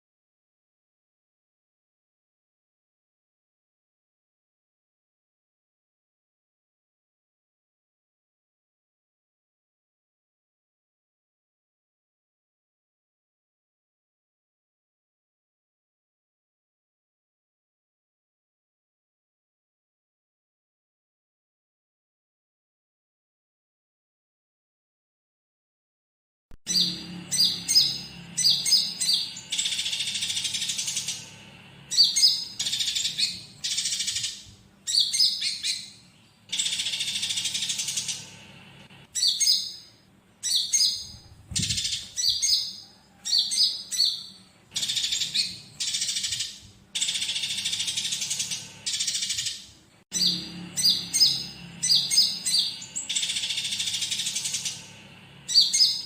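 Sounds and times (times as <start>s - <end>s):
sparrow chatter: 26.7s - 38.6s, 39.2s - 56.0s
sunbird song: 26.7s - 56.0s.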